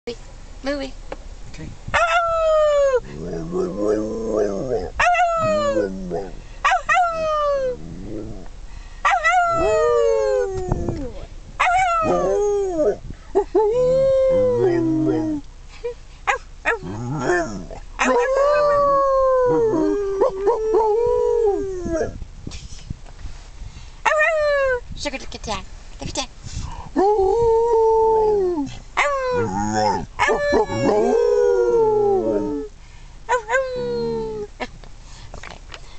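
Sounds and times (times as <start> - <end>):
dog howling: 2.0 - 8.4, 9.1 - 13.0, 13.7 - 15.4, 16.7 - 22.2, 27.0 - 32.7.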